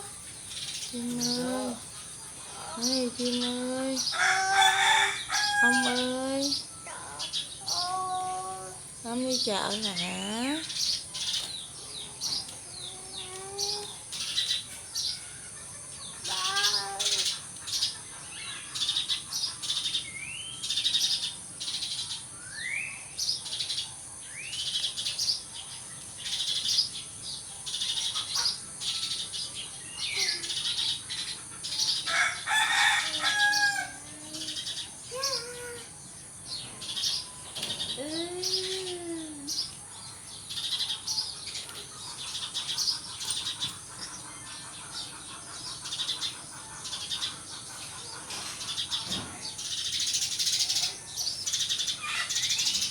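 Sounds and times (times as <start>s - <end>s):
sparrows chirping: 0.0s - 52.9s.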